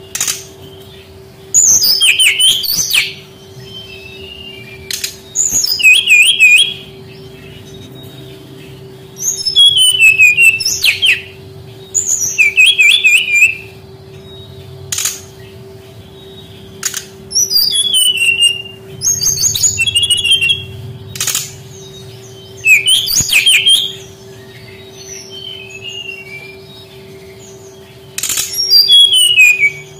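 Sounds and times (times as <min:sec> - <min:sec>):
steady low hum: 0:00.0 - 0:29.9
flycatcher whistled song: 0:01.4 - 0:29.9
sharp clicks: 0:21.1 - 0:21.6, 0:28.2 - 0:28.6.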